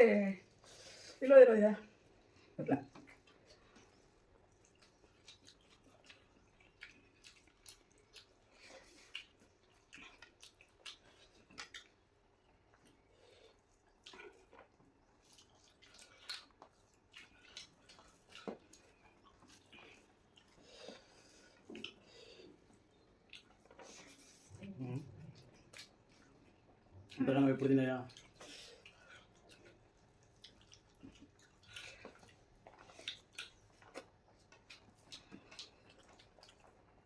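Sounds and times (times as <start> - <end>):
wet chewing and lip smacks: 2.9 - 37.0.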